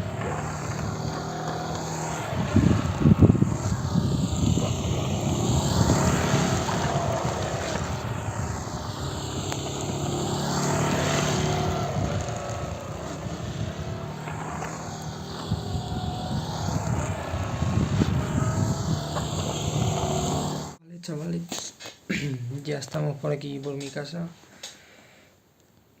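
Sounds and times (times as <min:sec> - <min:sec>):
motorcycle engine passing: 0:00.0 - 0:20.8
wind buffeting crackle: 0:00.0 - 0:20.8.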